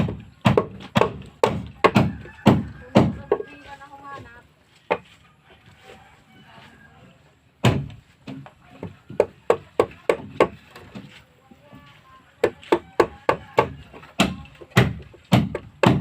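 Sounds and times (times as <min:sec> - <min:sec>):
tool striking wood: 0:00.0 - 0:03.4, 0:07.6 - 0:11.1, 0:12.4 - 0:16.0.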